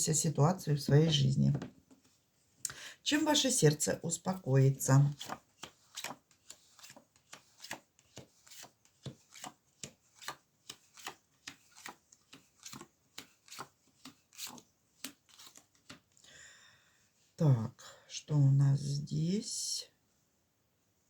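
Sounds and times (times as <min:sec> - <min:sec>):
cards being shuffled: 0:05.1 - 0:16.3.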